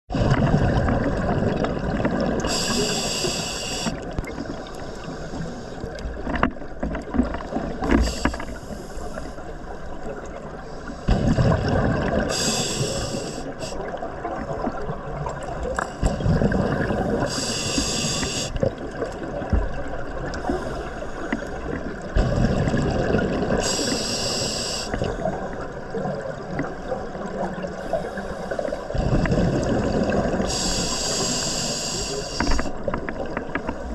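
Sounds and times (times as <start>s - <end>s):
gurgling exhaled bubbles: 0.1s - 3.3s, 9.9s - 27.9s, 28.8s - 31.4s
regulator hissing inhale: 2.4s - 6.0s, 7.9s - 9.5s, 12.3s - 13.8s, 17.1s - 18.7s, 20.4s - 21.2s, 23.6s - 25.1s, 27.8s - 28.9s, 30.4s - 32.8s.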